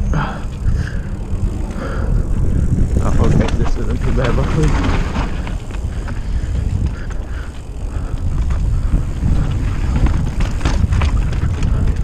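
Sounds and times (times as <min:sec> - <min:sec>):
bike clicks and rattles: 0:00.0 - 0:12.0
mountain bike rolling on trail: 0:00.0 - 0:12.0
wind buffeting microphone: 0:00.0 - 0:12.0.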